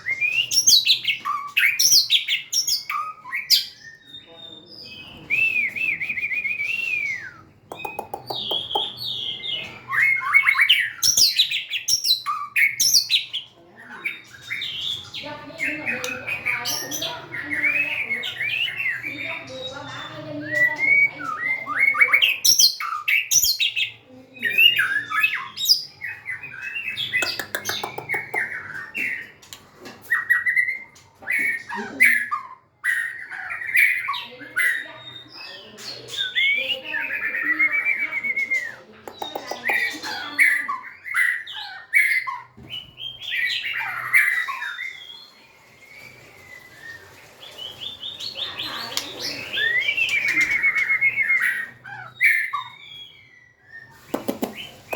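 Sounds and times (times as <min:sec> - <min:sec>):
bird singing whistled phrases: 0:00.0 - 0:13.2, 0:30.1 - 0:54.9.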